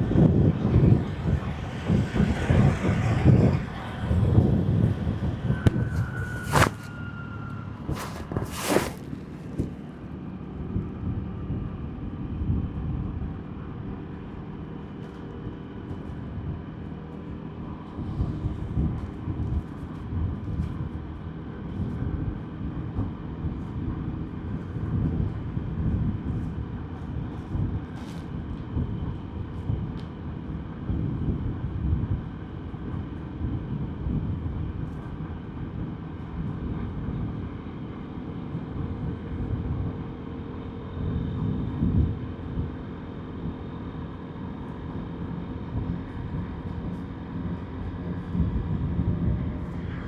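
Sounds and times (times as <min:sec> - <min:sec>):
wind noise: 0:00.0 - 0:10.0
motorbike engine and road rumble: 0:00.0 - 0:22.2.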